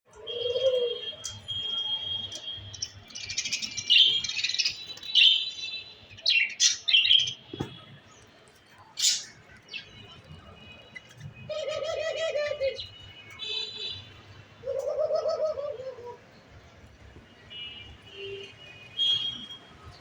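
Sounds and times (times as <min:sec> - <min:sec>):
dove cooing: 0:00.2 - 0:01.1, 0:11.5 - 0:12.8, 0:14.6 - 0:16.2.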